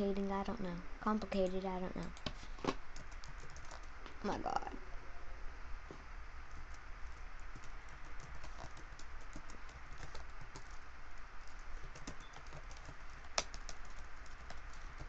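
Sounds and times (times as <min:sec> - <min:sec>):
low steady hum: 0:00.0 - 0:15.0
typing on computer keyboard: 0:03.0 - 0:03.9, 0:06.5 - 0:15.0.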